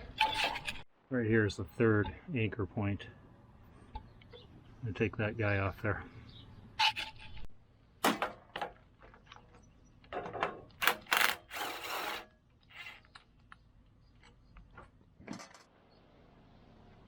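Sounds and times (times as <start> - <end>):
tool scrape or rattle: 0.0 - 0.9, 10.8 - 13.1.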